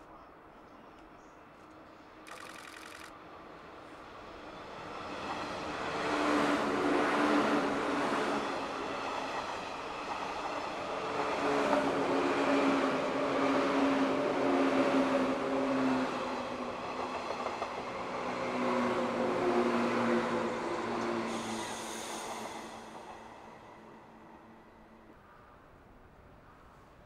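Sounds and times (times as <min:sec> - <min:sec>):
low train hum: 0:00.0 - 0:02.3, 0:03.1 - 0:27.0
train wheels rumbling on rail: 0:04.2 - 0:24.2.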